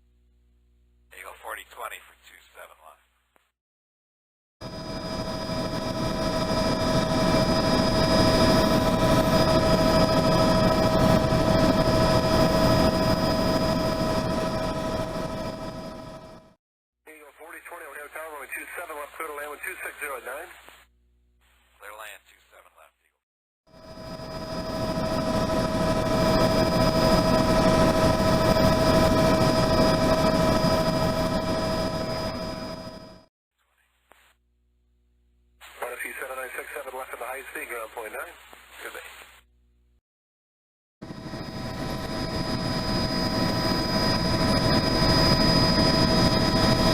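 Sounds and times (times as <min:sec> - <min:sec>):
aircraft turbine engine whine: 0:04.6 - 0:16.4, 0:23.7 - 0:33.2, 0:41.0 - 0:46.9
helicopter running: 0:04.6 - 0:16.6, 0:23.7 - 0:33.3, 0:41.0 - 0:46.9.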